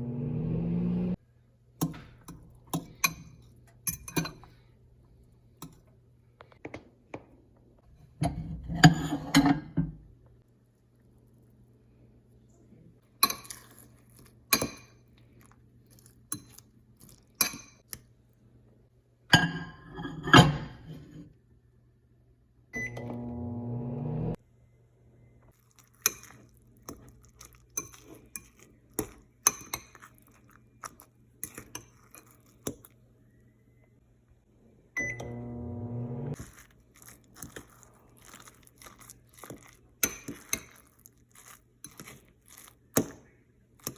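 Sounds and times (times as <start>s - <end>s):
microwave oven beeping: 0.0s - 1.2s, 22.8s - 24.4s, 35.0s - 36.4s
microwave oven humming: 0.0s - 1.2s, 22.8s - 24.4s, 34.9s - 36.4s
dishes clinking: 8.2s - 10.0s, 19.3s - 21.2s
crunchy chewing: 25.5s - 33.0s, 36.4s - 43.9s.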